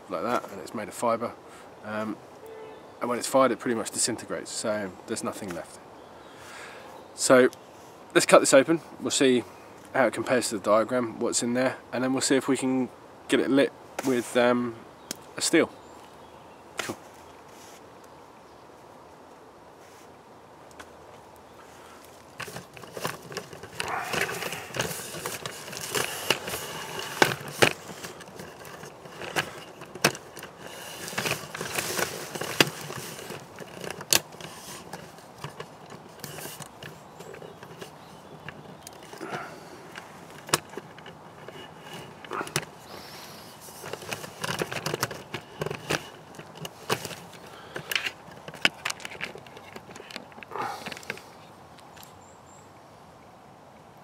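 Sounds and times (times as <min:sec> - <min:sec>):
rustling against clothing: 0:15.3 - 0:52.2
camera handling clicks and knocks: 0:43.8 - 0:51.2.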